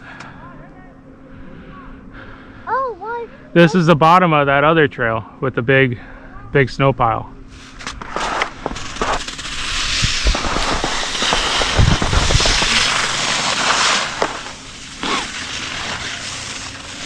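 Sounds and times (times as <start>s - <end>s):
skis scraping over snow: 7.6s - 17.0s
wind buffeting microphone: 8.7s - 13.3s.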